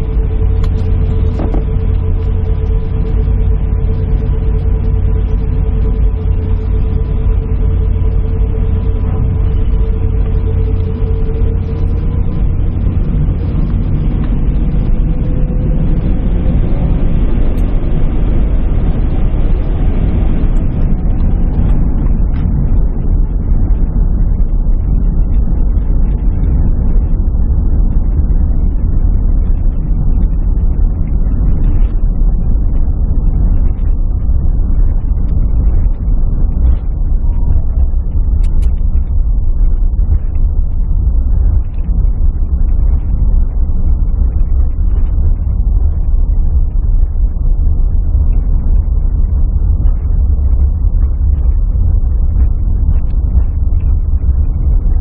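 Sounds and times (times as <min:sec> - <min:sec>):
jet engines rumbling: 0:00.0 - 0:23.9.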